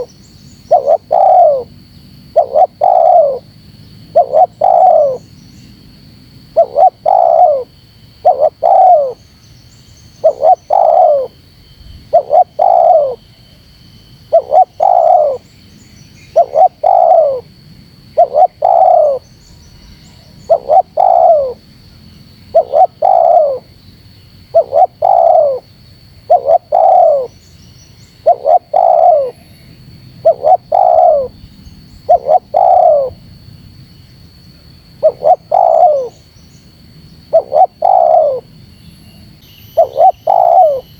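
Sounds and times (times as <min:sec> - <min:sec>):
dove cooing: 0:00.0 - 0:03.5, 0:04.1 - 0:05.3, 0:06.5 - 0:09.2, 0:10.2 - 0:11.4, 0:12.1 - 0:13.2, 0:14.3 - 0:15.5, 0:16.3 - 0:17.5, 0:18.2 - 0:19.3, 0:20.2 - 0:21.6, 0:22.5 - 0:23.7, 0:24.5 - 0:27.4, 0:28.2 - 0:29.5, 0:30.2 - 0:33.2, 0:35.0 - 0:36.2, 0:37.2 - 0:38.5, 0:39.8 - 0:40.9.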